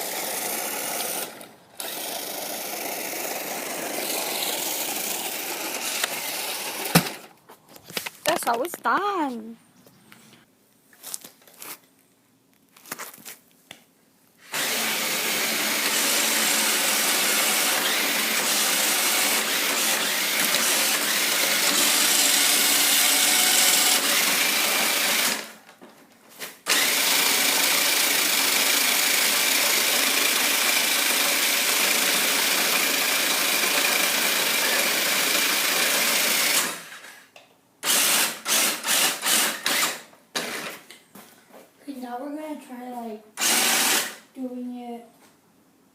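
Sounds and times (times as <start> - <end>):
toy car electric motor whining: 0.0 - 7.3, 14.5 - 25.5.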